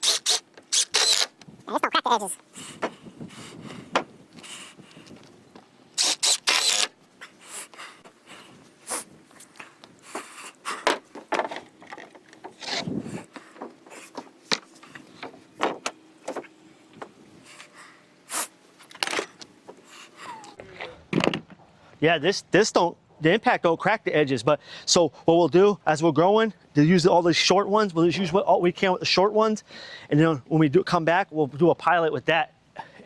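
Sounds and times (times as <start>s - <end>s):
impact driver driving screw: 0.0s - 1.3s, 6.0s - 7.0s.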